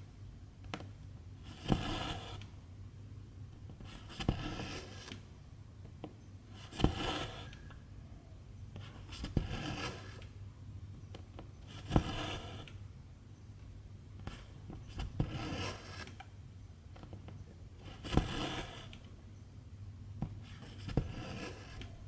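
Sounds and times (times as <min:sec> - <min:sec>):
thread rasping through fabric: 0:06.6 - 0:07.8, 0:17.8 - 0:19.0.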